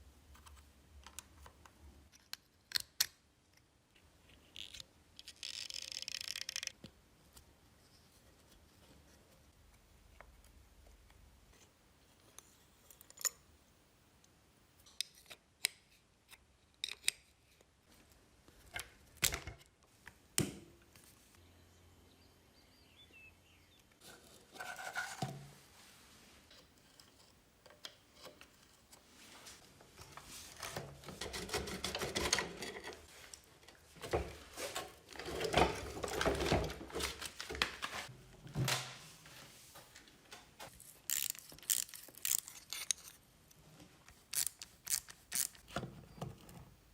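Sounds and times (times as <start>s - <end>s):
scraping and rubbing metal: 24.0s - 25.5s.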